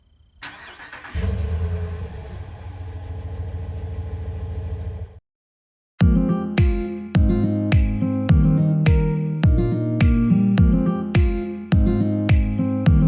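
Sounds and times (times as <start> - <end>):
car engine starting and running: 0.4 - 5.2
guitar music: 6.0 - 13.0.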